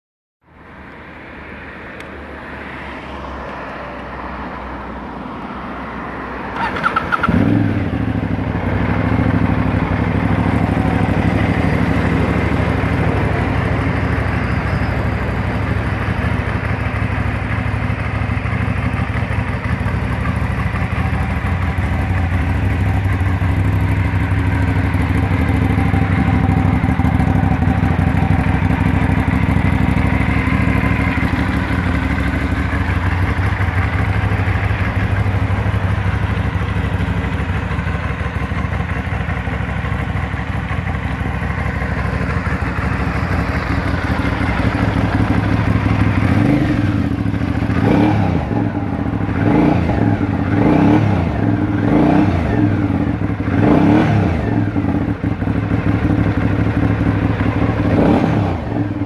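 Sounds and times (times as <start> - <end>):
motorcycle engine idling: 6.5 - 59.0
motorcycle engine starter cranking: 6.6 - 7.3.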